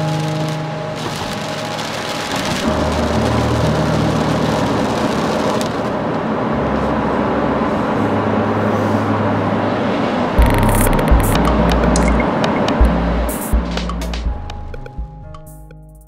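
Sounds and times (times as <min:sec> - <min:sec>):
tyre hiss on wet road: 0:00.0 - 0:06.1.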